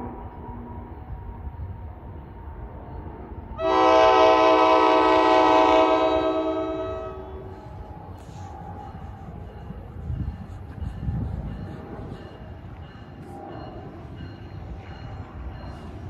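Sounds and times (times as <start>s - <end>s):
locomotive air horn blast: 3.6s - 7.6s.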